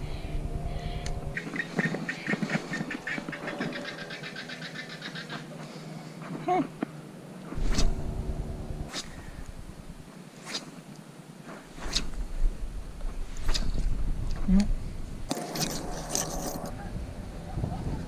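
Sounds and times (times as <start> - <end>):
bird calling: 0.8 - 5.9.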